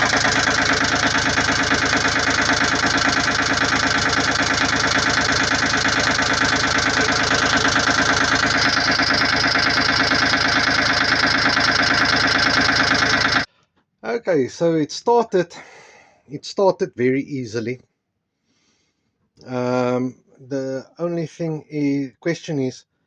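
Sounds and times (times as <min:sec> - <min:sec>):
marine diesel engine idling: 0:00.0 - 0:13.5.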